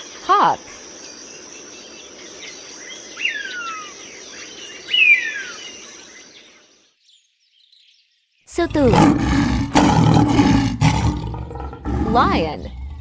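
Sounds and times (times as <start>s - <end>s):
insects chorus: 0.0s - 6.8s, 8.6s - 13.0s
hawk screaming: 8.6s - 13.0s.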